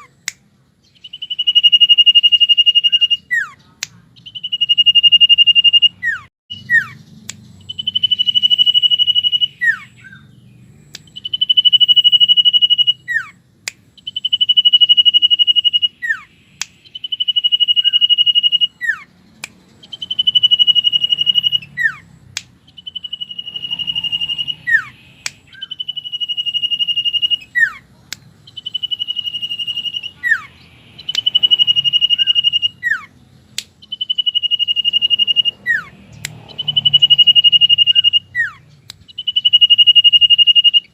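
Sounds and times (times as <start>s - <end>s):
bird singing high whistles: 0.8s - 3.6s, 4.2s - 33.2s, 33.8s - 40.9s.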